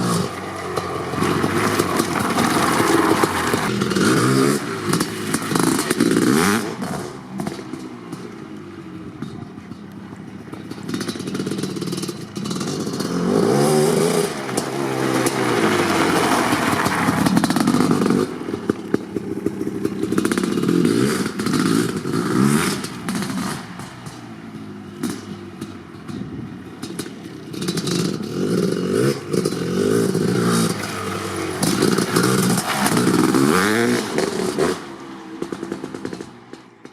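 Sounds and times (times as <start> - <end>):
two-stroke motorcycle engine revving: 0.0 - 36.9.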